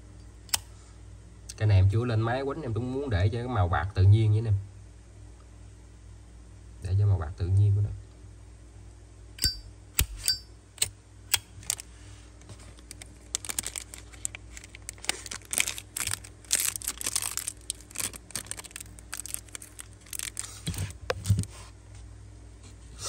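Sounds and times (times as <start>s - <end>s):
faint steady hum: 0.0s - 23.0s
crinkling and rustling: 11.6s - 21.8s.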